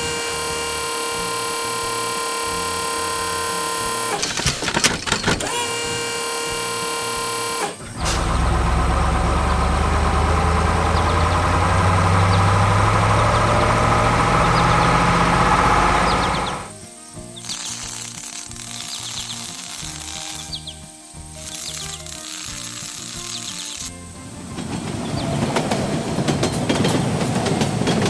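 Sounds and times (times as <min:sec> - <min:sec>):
heavy diesel engine running hard: 0:00.0 - 0:04.4, 0:05.4 - 0:16.8, 0:24.2 - 0:28.0
steady whine: 0:00.0 - 0:28.0.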